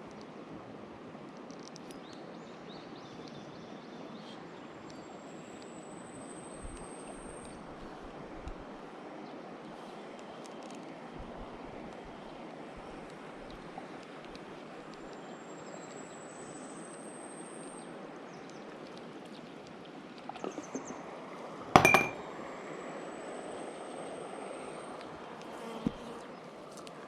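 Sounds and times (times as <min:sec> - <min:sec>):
stream water running: 0:04.4 - 0:17.1, 0:17.8 - 0:27.0
sharp knock with short ring: 0:21.8 - 0:22.2.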